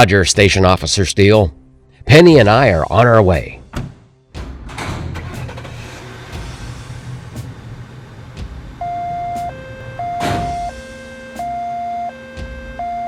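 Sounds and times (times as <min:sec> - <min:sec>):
engine rumble: 0:04.7 - 0:11.0
two-tone siren: 0:08.8 - 0:13.0.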